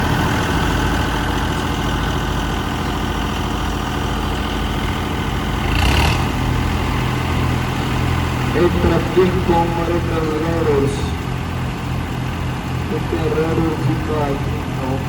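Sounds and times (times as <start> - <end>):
tractor diesel engine idling: 0.0 - 15.0.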